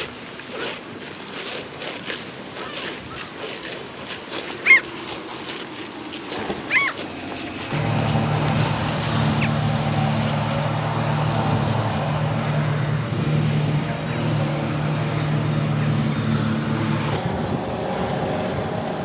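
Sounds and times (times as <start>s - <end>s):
rough machine noise: 7.6s - 19.0s
tractor engine running: 7.7s - 19.0s.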